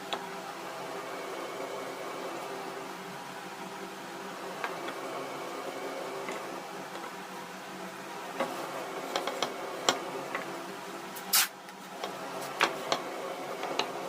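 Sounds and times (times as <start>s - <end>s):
steady hum: 0.0s - 14.0s
short hissing burst: 11.2s - 11.6s.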